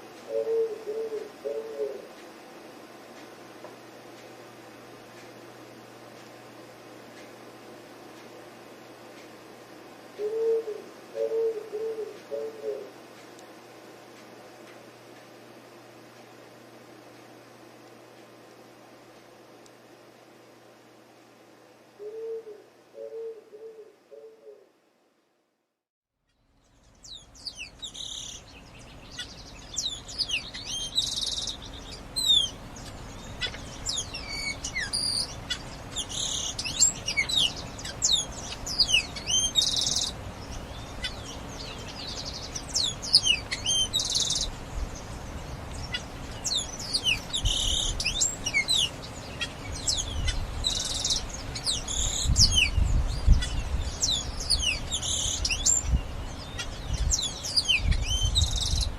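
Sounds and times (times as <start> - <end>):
flock of birds chirping: 26.6 - 58.9.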